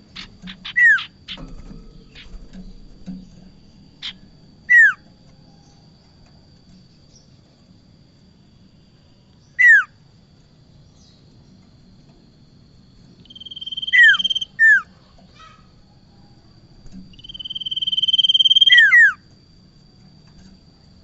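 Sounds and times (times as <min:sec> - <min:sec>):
faint steady high tone: 0:00.4 - 0:21.0
bird whistled calls: 0:04.0 - 0:05.0, 0:13.2 - 0:14.9, 0:17.2 - 0:19.2.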